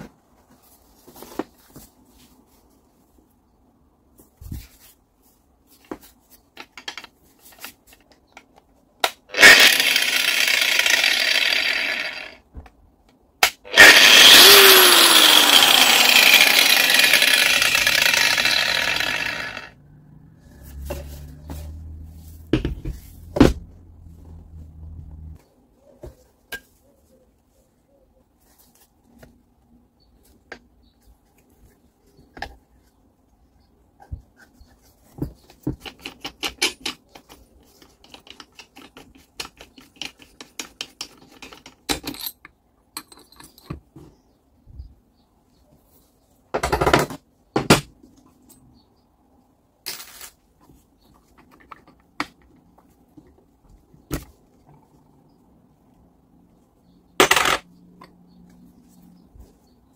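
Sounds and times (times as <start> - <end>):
metal tools clinking on workbench: 40.8 - 43.9.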